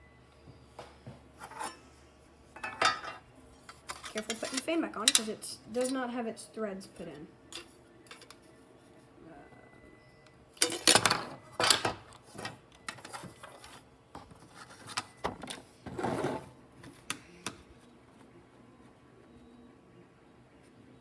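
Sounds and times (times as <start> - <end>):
clatters and scrapes of metal case: 10.7 - 16.5.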